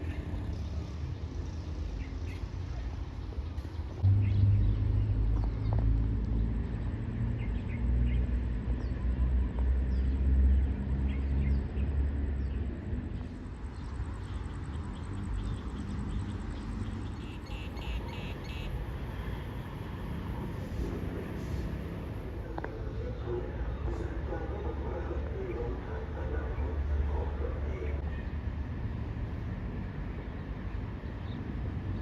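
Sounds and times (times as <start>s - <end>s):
birds chirping: 13.7s - 23.4s
heavy engine droning: 17.2s - 24.7s.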